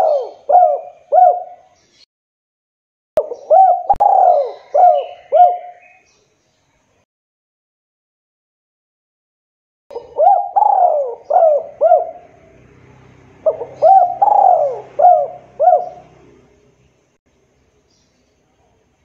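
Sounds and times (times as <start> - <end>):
dove cooing: 0.0 - 1.8, 3.2 - 6.0, 9.9 - 12.6, 13.4 - 16.5.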